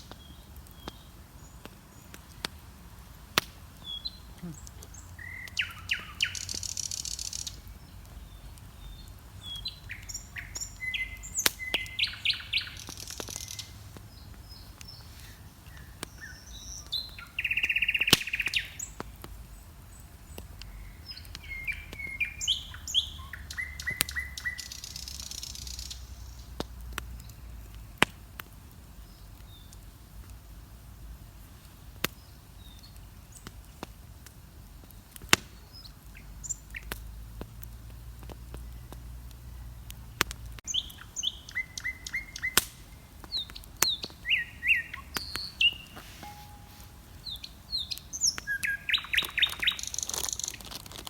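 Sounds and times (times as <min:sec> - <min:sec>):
songbirds singing and chirping: 0:00.0 - 0:30.1, 0:31.2 - 0:51.0
bonfire crackling and popping: 0:00.0 - 0:51.0
buzzy bird trill: 0:44.3 - 0:50.7.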